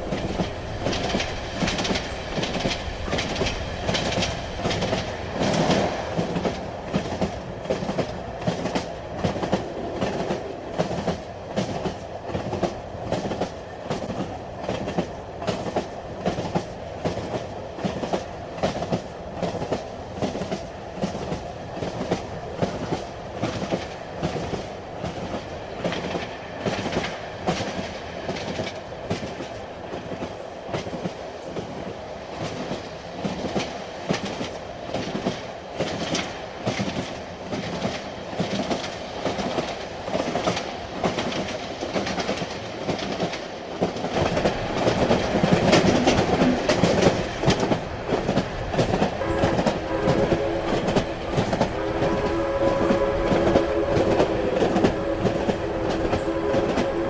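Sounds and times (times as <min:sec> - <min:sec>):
wheels clacking over rail joints: 0:00.0 - 0:15.1, 0:39.4 - 0:57.0
train rumbling along track: 0:00.0 - 0:57.0.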